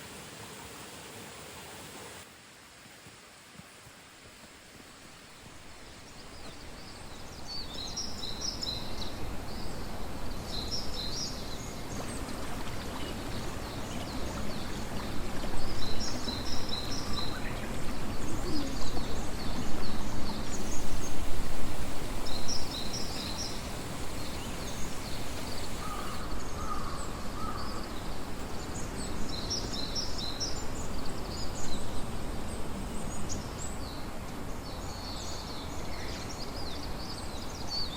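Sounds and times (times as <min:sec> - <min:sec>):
steady rushing noise: 0:08.7 - 0:27.3.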